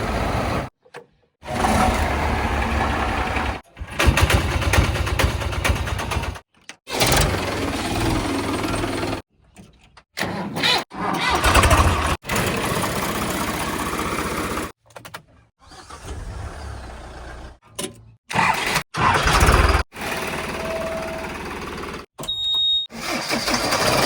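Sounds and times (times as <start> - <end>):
heavy diesel machinery engine: 1.4 - 3.6.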